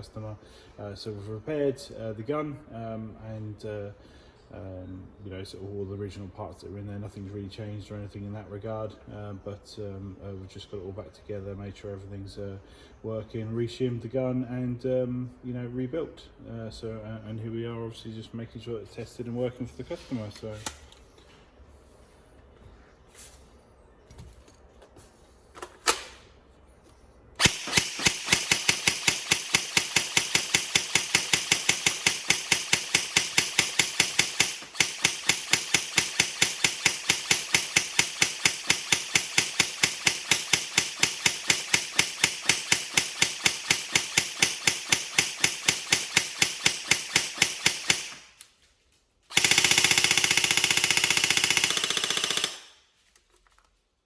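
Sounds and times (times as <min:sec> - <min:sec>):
airsoft gun firing shots: 0:27.4 - 0:48.4, 0:49.3 - 0:52.8.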